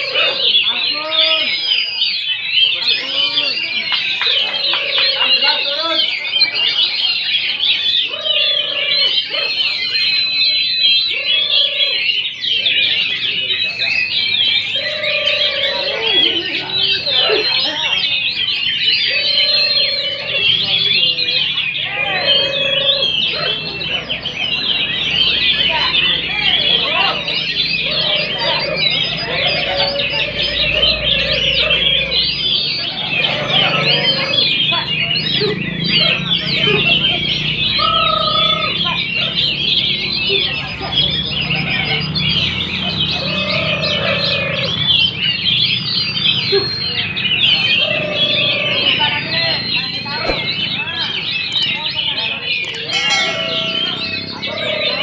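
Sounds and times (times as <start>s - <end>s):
songbirds chorus: 0.0s - 55.0s
low wavering note: 52.8s - 54.4s.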